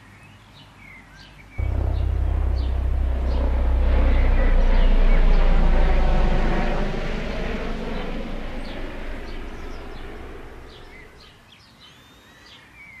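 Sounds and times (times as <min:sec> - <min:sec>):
low rumbling noise: 0:01.6 - 0:11.3.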